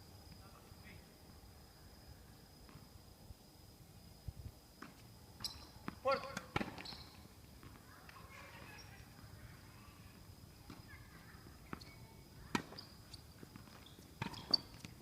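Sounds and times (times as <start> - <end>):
faint distant voices: 7.6 - 13.5.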